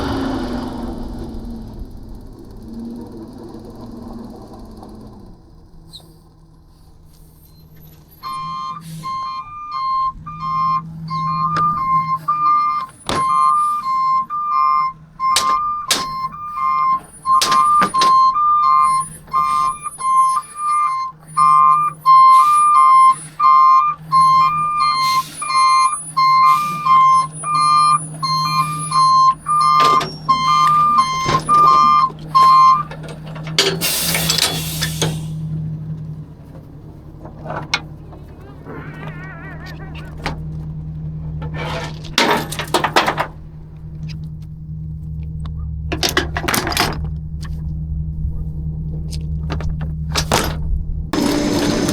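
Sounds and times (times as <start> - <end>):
truck engine idling: 0.0 - 51.9
two-tone warning alarm beeping: 7.1 - 48.1, 48.7 - 51.9
sharp metal bangs: 11.4 - 21.2
air hiss: 33.8 - 35.5.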